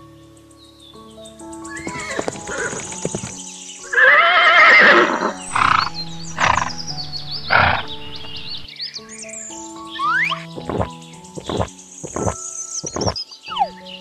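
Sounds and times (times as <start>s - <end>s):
background music: 0.0s - 14.0s
horse neighing: 1.8s - 3.0s, 3.9s - 6.8s, 7.5s - 7.9s.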